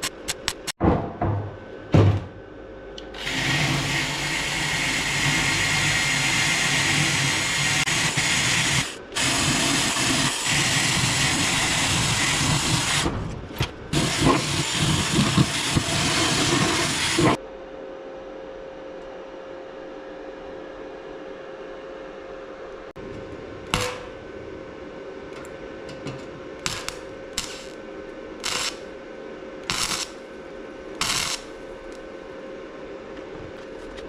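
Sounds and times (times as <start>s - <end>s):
welding arc crackling and buzzing: 3.0s - 17.4s, 23.0s - 24.4s, 25.3s - 29.0s, 29.6s - 32.1s.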